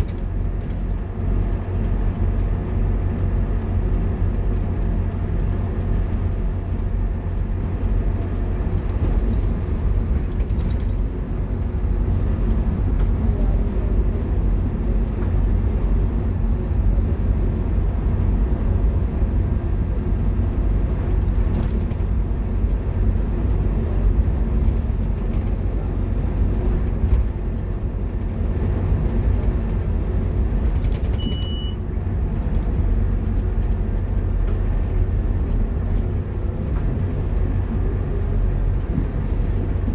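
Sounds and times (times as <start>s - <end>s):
bus diesel engine running: 0.0s - 39.9s
road noise: 0.0s - 39.9s
high beep: 31.2s - 31.8s.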